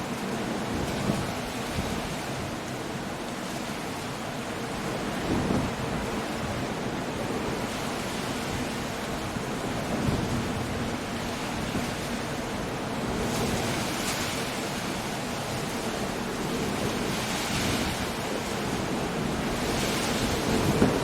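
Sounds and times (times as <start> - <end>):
rain: 0.0 - 21.0
wind: 0.0 - 21.0
surf breaking against cliffs: 16.2 - 21.0.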